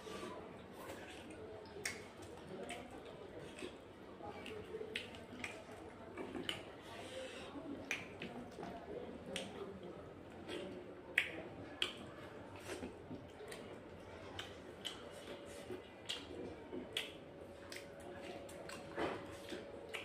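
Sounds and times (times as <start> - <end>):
person chewing chicken: 0.7 - 8.7, 10.3 - 20.0.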